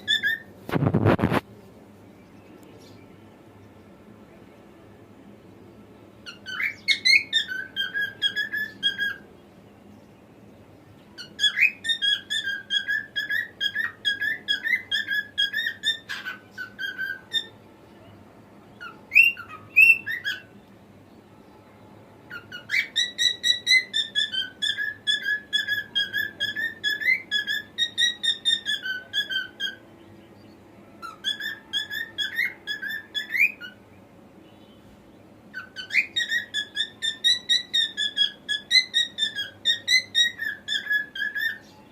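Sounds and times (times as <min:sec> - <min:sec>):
cockatiel whistling: 0:00.0 - 0:00.5, 0:06.2 - 0:09.2, 0:11.2 - 0:17.5, 0:18.8 - 0:20.5, 0:22.3 - 0:29.8, 0:31.0 - 0:33.8, 0:35.5 - 0:41.6.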